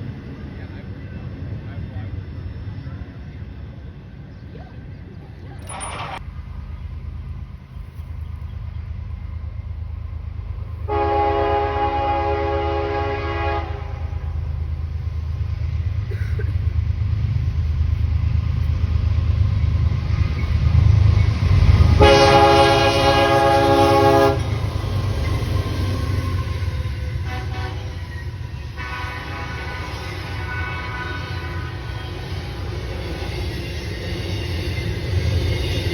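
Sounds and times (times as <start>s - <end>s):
locomotive rumble: 0.0s - 35.9s
train horn blasts: 10.9s - 14.5s, 21.9s - 24.8s, 26.0s - 32.4s.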